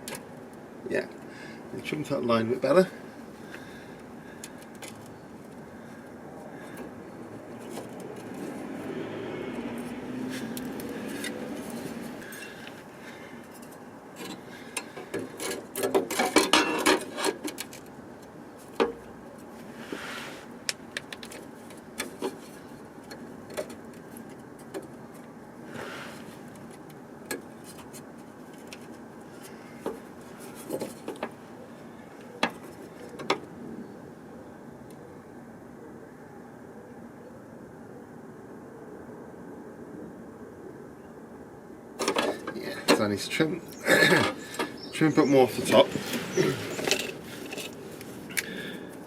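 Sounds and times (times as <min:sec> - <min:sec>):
metallic clanks and knocks: 0:14.2 - 0:17.6.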